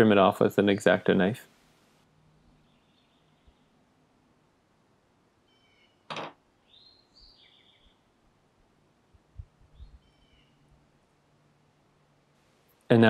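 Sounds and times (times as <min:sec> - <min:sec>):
birds chirping: 0:02.3 - 0:03.8, 0:05.5 - 0:08.1, 0:09.7 - 0:10.8.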